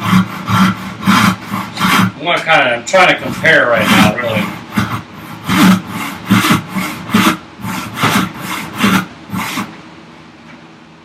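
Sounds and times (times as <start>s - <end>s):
handsaw cutting wood: 0.0s - 9.7s.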